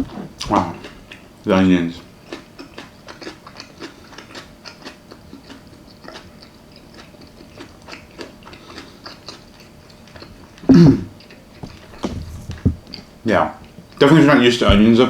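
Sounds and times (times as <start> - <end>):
person chewing onions: 0.0 - 14.1
person humming: 10.7 - 11.1.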